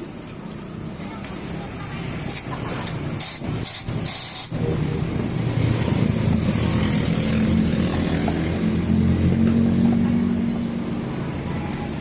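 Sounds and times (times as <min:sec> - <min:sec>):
short hissing bursts: 0:03.2 - 0:04.5.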